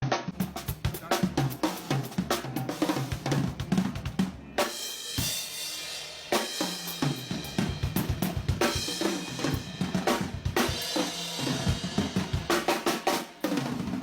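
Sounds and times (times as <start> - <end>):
drum kit played fast: 0.0 - 14.0
cymbal ringing: 4.7 - 14.0.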